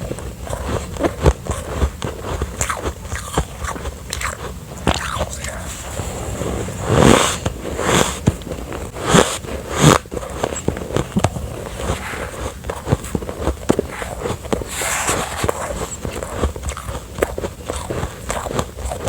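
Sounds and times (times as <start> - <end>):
crunchy ice chewing: 0.0 - 6.0, 7.0 - 19.0.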